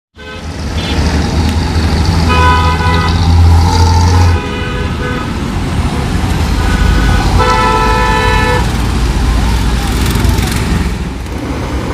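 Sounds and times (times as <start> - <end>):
truck horn honks: 0.2 - 1.1, 2.2 - 5.4, 6.6 - 8.7.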